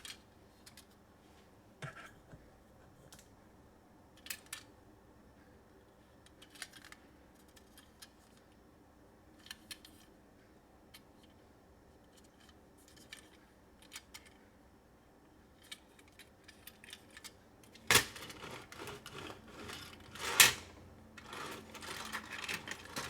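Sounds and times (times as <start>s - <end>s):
plastic toy cars clattering: 6.3s - 8.3s, 15.6s - 23.0s.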